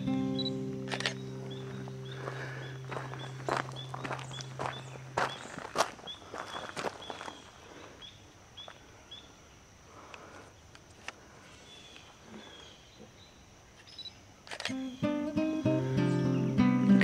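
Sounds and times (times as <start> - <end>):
small bird chirping: 0.0 - 9.4, 11.6 - 17.0
footsteps on gravel: 0.9 - 8.0.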